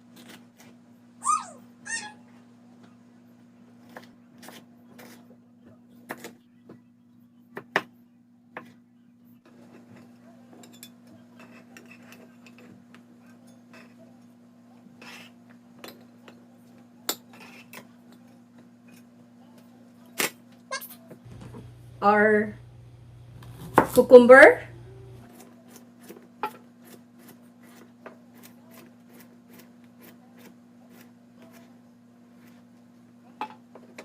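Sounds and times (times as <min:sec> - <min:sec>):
low hum: 0:21.3 - 0:25.3
knife cutting on cutting board: 0:23.4 - 0:24.2.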